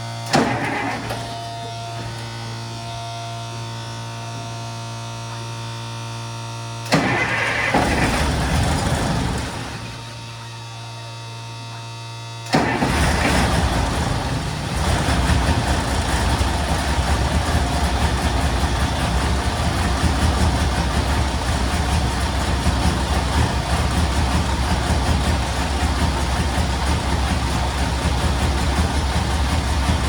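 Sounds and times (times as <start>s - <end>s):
diesel engine idling: 0.0s - 11.3s, 12.5s - 30.0s
engine starter cranking: 0.2s - 2.4s, 6.8s - 10.2s, 12.5s - 30.0s.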